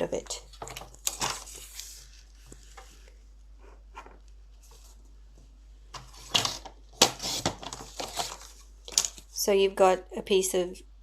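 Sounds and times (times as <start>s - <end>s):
paper handling: 0.5s - 3.1s, 6.0s - 9.3s.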